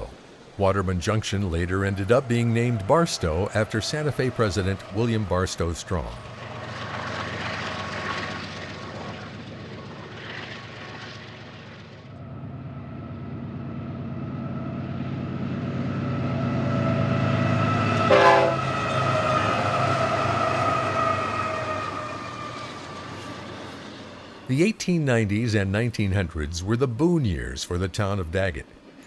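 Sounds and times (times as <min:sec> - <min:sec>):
locomotive engine drone: 0:00.0 - 0:29.0
train horn: 0:17.2 - 0:23.4.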